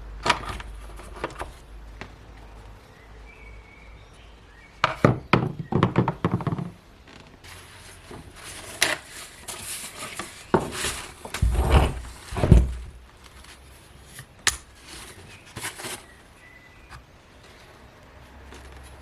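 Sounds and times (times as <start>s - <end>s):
hard objects knocking and scraping: 8.0s - 13.5s
heavy dull thumps: 11.3s - 13.0s.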